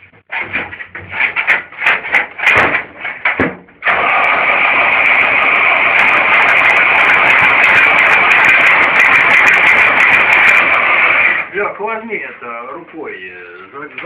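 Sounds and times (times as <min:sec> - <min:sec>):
engine sputtering and running: 0:03.8 - 0:11.4.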